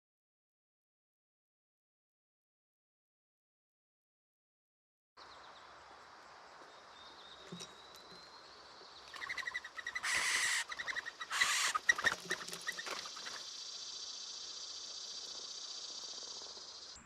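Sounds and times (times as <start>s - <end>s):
steady high hiss: 5.2s - 17.0s
bird chattering: 9.1s - 14.3s.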